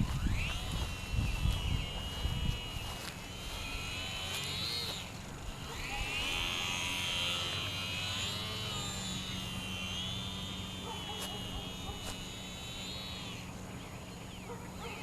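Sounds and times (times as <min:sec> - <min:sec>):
model airplane motor whining: 0:00.0 - 0:15.0.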